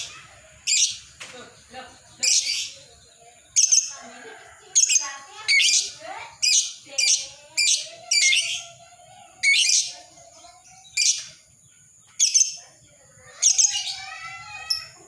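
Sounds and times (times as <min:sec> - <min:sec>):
lovebird shrill chirps: 0:03.6 - 0:04.0, 0:04.8 - 0:08.8, 0:09.4 - 0:10.0, 0:10.6 - 0:11.4, 0:12.2 - 0:12.6, 0:13.3 - 0:15.0.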